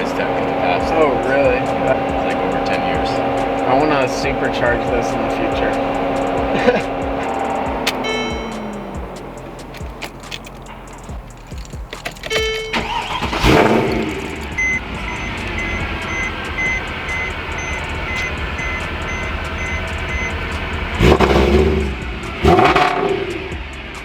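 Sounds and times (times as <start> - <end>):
warning chime beeping: 0.0 - 9.6, 12.2 - 20.7
car engine starting and idling: 0.0 - 24.0
engine revving: 0.0 - 24.0.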